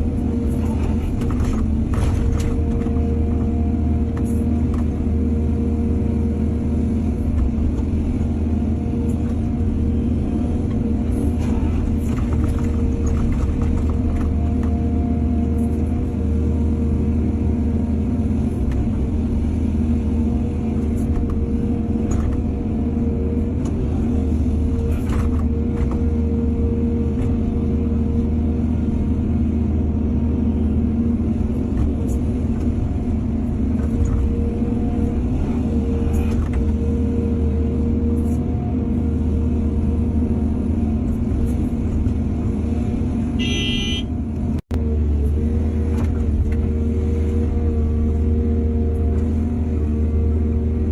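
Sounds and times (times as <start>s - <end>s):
excavator diesel engine running: 0.0s - 50.9s
short horn toot: 43.4s - 44.2s.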